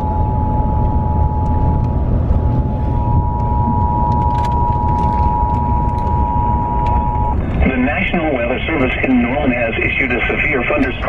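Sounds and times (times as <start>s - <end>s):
vehicle low rumble: 0.0s - 11.0s
two-tone alert alarm: 3.0s - 7.6s.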